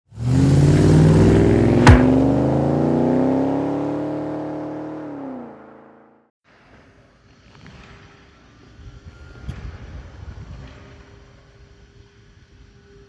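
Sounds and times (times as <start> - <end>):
car engine accelerating: 0.1 - 6.1
sharp crack: 1.8 - 2.6.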